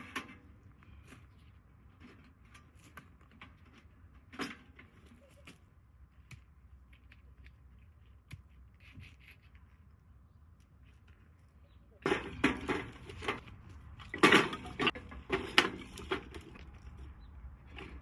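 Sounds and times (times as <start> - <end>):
light handling clicks and rustles: 10.6 - 18.0.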